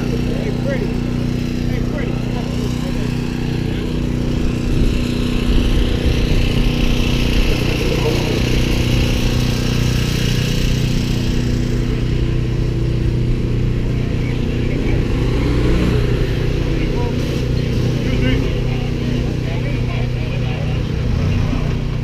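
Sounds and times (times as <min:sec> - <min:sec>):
people talking: 0:00.0 - 0:05.0, 0:07.1 - 0:09.4, 0:13.7 - 0:22.0
race car engine idling: 0:00.0 - 0:22.0.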